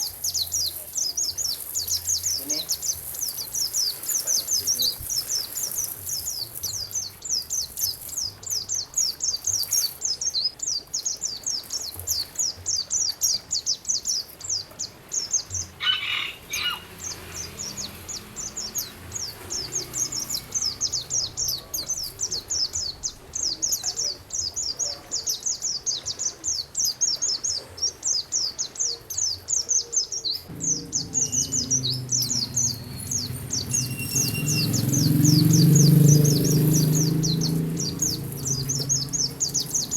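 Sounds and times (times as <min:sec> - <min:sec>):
running water hiss: 0:00.0 - 0:10.4, 0:30.5 - 0:39.9
songbird singing rapid notes: 0:00.0 - 0:39.9
low rumbling sound: 0:30.5 - 0:39.9.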